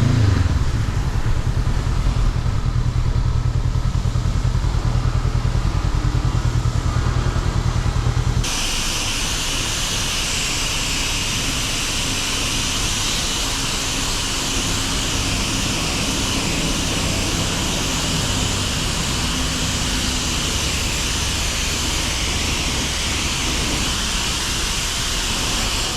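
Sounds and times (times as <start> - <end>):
motorcycle engine idling: 0.0 - 8.5
steady hiss: 8.4 - 25.9.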